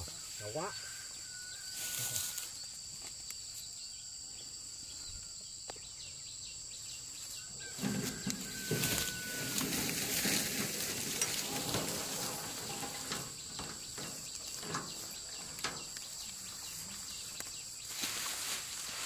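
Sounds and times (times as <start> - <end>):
insects chirring: 0.0 - 19.0
rice stalks rustling and crunching: 1.7 - 3.1, 7.7 - 19.0.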